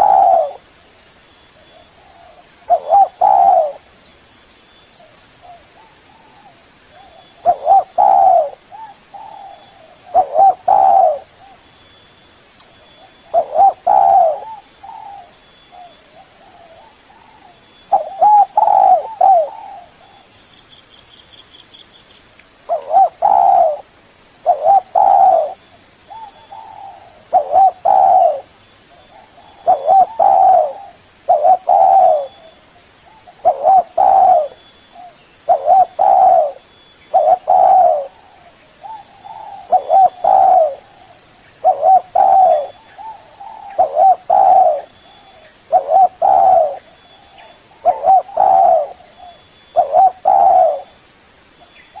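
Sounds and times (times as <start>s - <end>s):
dove cooing: 0.0s - 0.7s, 1.7s - 3.9s, 5.4s - 11.6s, 13.0s - 20.3s, 22.7s - 51.0s.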